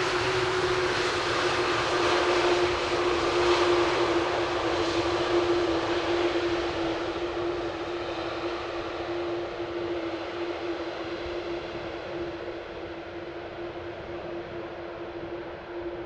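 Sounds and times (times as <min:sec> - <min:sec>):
jet engines droning: 0:00.0 - 0:16.0.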